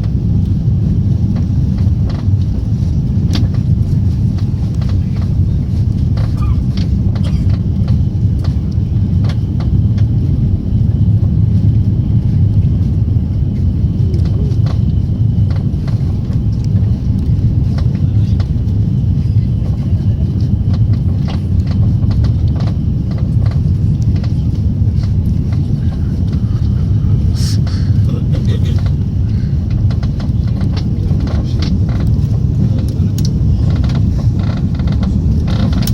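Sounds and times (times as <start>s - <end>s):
airliner cabin rumble: 0.0s - 35.9s
small clicks and rattles: 29.7s - 35.9s.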